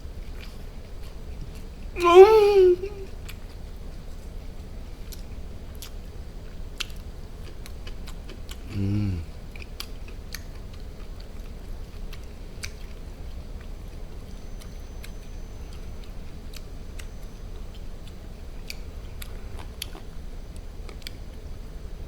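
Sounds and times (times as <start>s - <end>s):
person chewing wetly: 5.1s - 6.0s, 6.8s - 14.0s, 17.7s - 20.1s
steady low hum: 8.0s - 9.7s.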